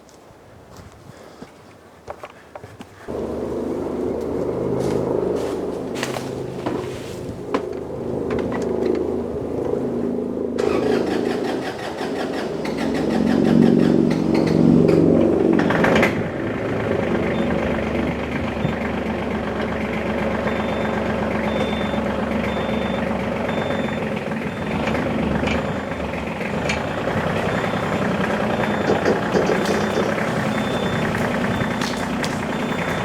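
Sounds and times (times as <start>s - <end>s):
tractor engine running: 3.1s - 33.0s.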